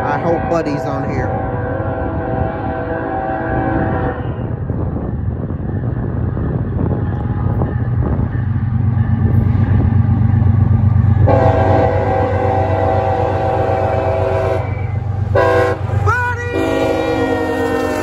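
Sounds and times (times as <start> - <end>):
locomotive air horn chord: 0.0 - 4.5, 11.2 - 18.0
diesel locomotives rumbling past: 0.0 - 18.0.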